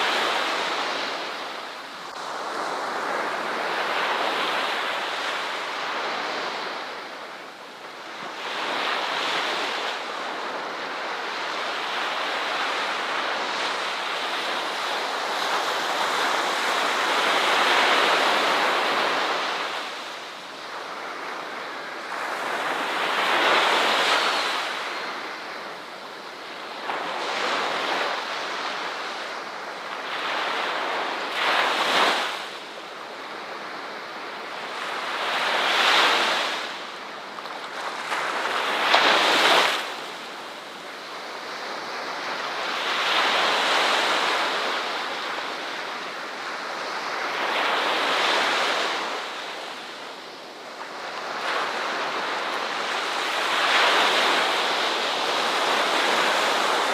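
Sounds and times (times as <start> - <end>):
ocean waves breaking: 33.2 - 56.9.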